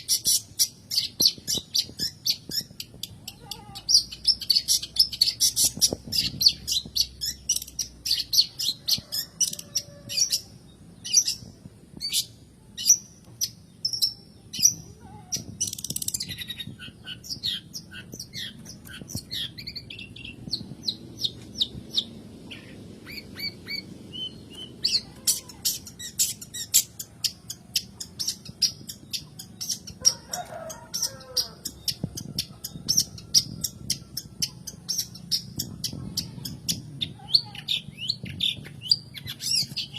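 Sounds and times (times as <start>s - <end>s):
bird chattering calls: 22.0s - 30.0s.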